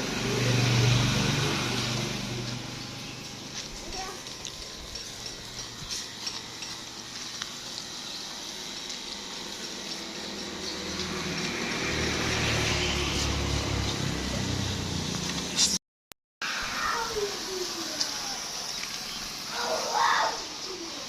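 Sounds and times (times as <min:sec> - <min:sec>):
low motor hum: 0:00.0 - 0:15.6
water spraying and splashing: 0:00.0 - 0:15.8, 0:16.4 - 0:21.0.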